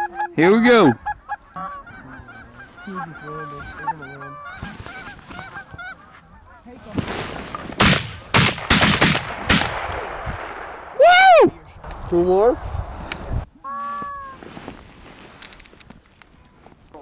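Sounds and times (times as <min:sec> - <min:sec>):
geese honking: 0:00.0 - 0:06.9
shotgun shots: 0:07.8 - 0:11.0.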